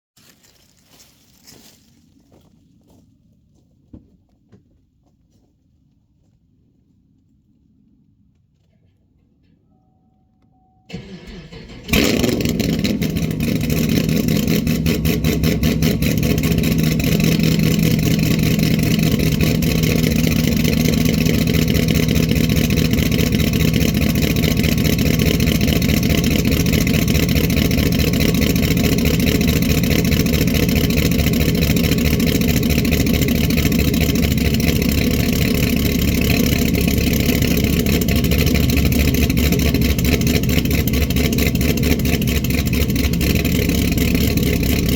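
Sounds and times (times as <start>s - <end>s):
car engine loud idle: 10.9s - 44.9s
starter cranking: 10.9s - 44.9s.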